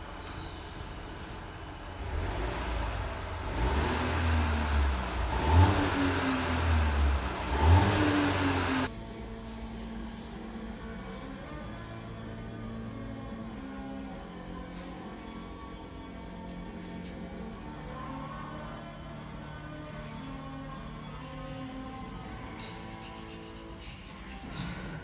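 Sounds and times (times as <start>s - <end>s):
misfiring car engine revving: 2.0s - 8.9s.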